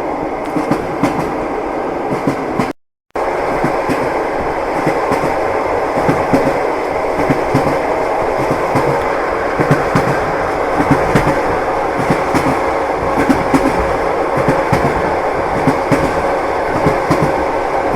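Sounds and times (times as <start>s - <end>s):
train rumbling: 0.0s - 17.9s
wheels clacking over rail joints: 6.0s - 17.9s.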